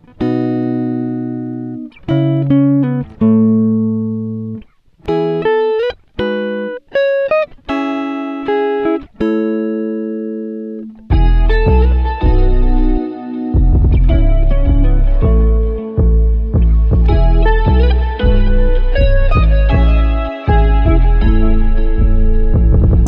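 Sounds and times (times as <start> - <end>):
clean guitar picking notes: 0.0 - 23.0
deep bass: 11.1 - 13.0, 13.6 - 23.0.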